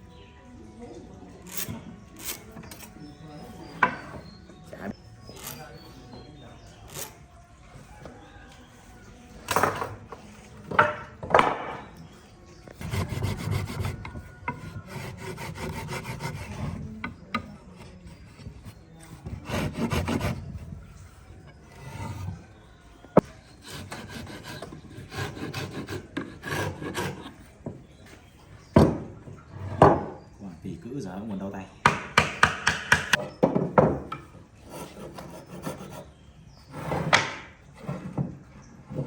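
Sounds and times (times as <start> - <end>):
wood rubbed and scraped by hand: 6.7 - 7.2, 12.7 - 27.6, 34.6 - 39.0.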